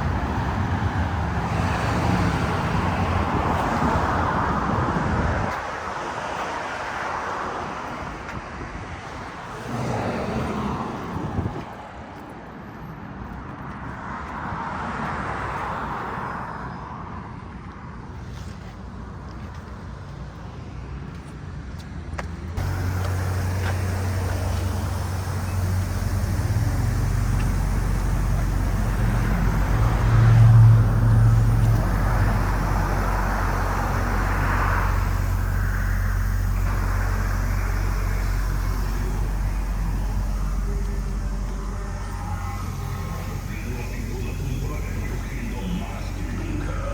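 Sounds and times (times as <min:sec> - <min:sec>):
cars passing: 0:00.0 - 0:21.2, 0:22.2 - 0:46.9
low rumble: 0:22.6 - 0:46.9.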